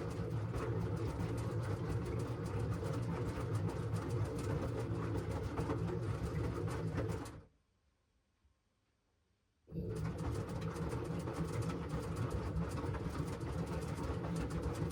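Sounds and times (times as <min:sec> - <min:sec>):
washing machine running: 0:09.8 - 0:14.9.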